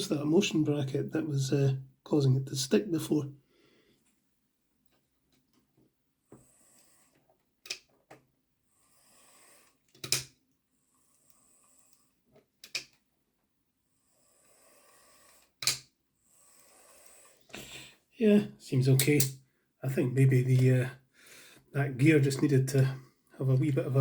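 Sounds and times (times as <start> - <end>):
sharp clicks: 15.6 - 15.9.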